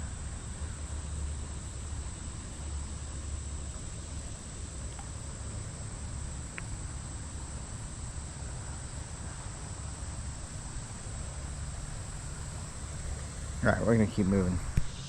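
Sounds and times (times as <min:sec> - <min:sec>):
insects trilling: 0:00.0 - 0:15.0
faint click: 0:06.5 - 0:06.7.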